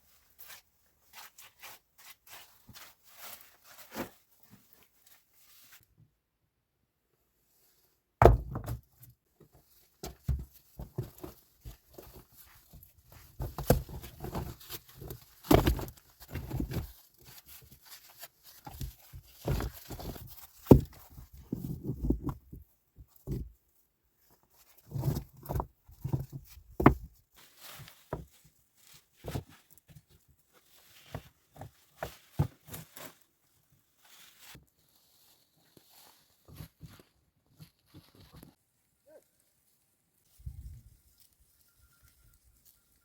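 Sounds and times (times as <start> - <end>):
crunching and rustling: 9.6 - 22.4, 24.6 - 38.6.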